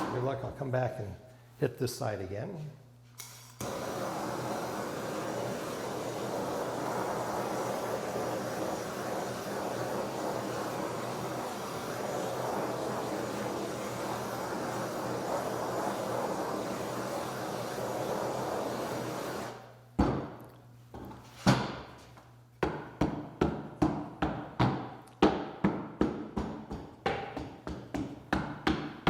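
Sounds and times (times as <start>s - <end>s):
hand torch hissing: 3.2s - 19.7s.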